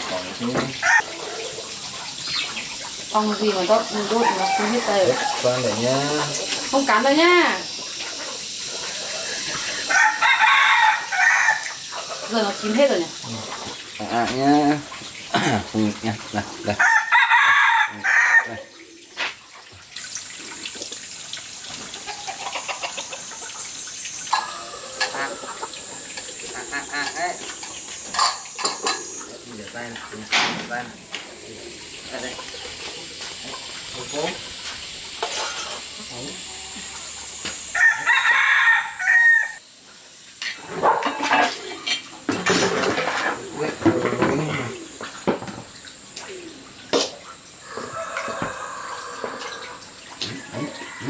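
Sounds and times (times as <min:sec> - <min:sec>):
water dripping: 0:00.0 - 0:51.0
water running and splashing: 0:00.0 - 0:51.0
rooster crowing: 0:00.8 - 0:01.1, 0:03.4 - 0:06.3, 0:09.1 - 0:12.4, 0:16.7 - 0:18.7, 0:24.3 - 0:29.1, 0:37.6 - 0:39.6, 0:47.6 - 0:51.0.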